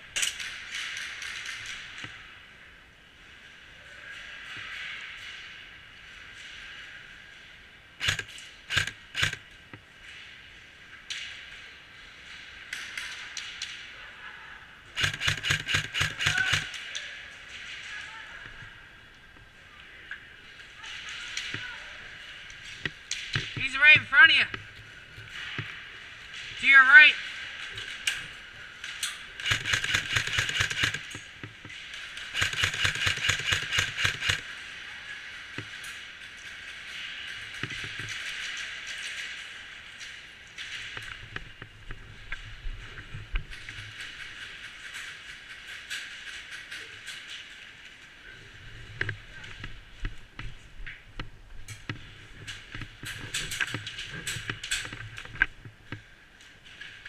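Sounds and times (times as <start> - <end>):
airsoft gun shots: 8.0 - 9.4, 15.0 - 16.7, 29.4 - 31.1, 32.4 - 34.4.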